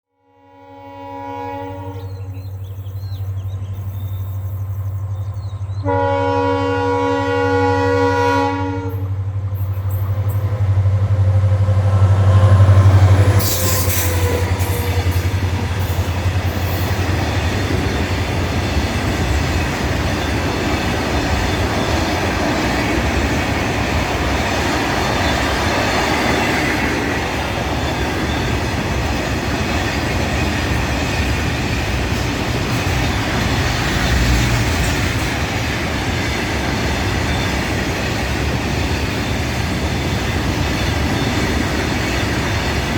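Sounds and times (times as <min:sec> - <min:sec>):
locomotive horn: 0:00.1 - 0:02.4, 0:05.8 - 0:09.2, 0:12.1 - 0:15.8
locomotive engine running: 0:08.9 - 0:42.9
train wheels clattering: 0:09.4 - 0:42.9.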